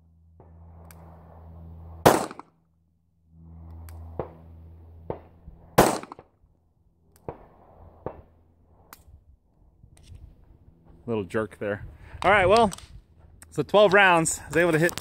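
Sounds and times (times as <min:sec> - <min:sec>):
pistol shot: 0:02.0 - 0:02.5, 0:05.1 - 0:06.3.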